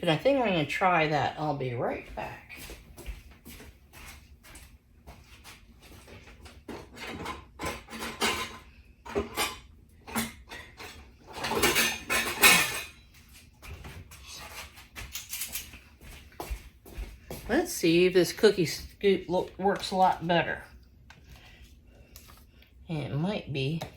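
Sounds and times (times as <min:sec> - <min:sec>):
metal utensils and dishes clattering: 0:06.7 - 0:13.0.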